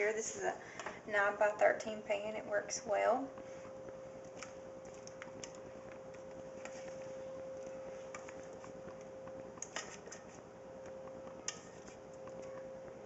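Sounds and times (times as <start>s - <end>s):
faint steady hum: 0.0s - 13.0s
spatula scraping a bowl: 9.6s - 10.4s.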